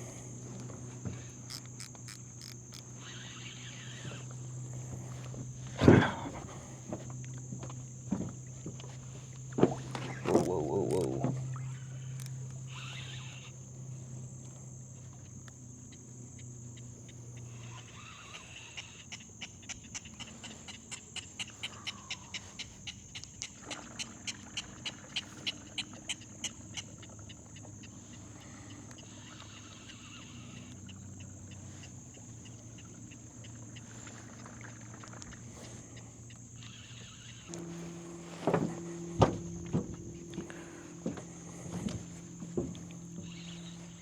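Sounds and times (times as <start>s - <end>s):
low steady hum: 0.0s - 19.0s, 23.8s - 44.0s
fishing reel clicking: 0.5s - 4.6s, 9.9s - 13.6s, 17.6s - 19.1s, 36.6s - 44.0s.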